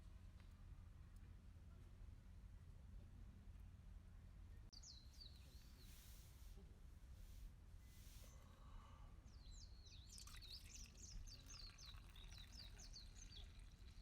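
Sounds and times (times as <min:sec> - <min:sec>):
songbird chirping: 0:09.3 - 0:14.0.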